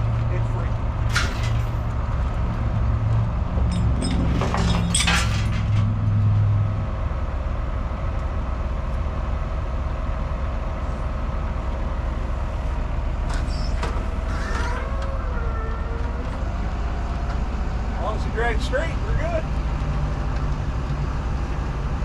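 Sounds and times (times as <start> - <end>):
truck engine running: 0.0 - 22.0
metal clinks and clanks: 1.1 - 1.9, 3.6 - 5.9.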